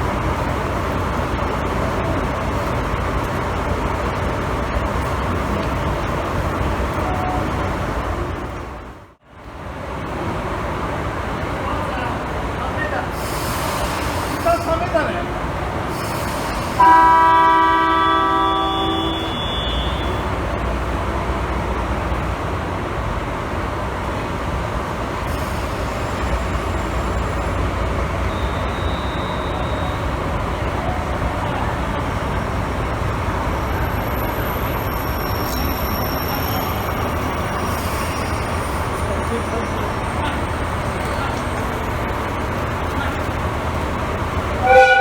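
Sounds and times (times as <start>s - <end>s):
diesel engine rumble: 0.0s - 45.0s
locomotive horn chord: 16.6s - 20.4s, 44.6s - 45.0s.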